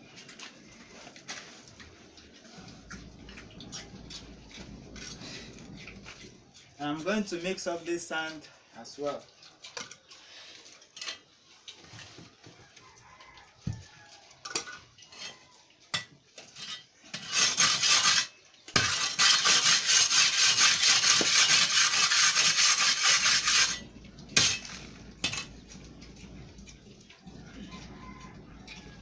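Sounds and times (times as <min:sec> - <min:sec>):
metal tool scraping sand on concrete: 0:16.5 - 0:25.6.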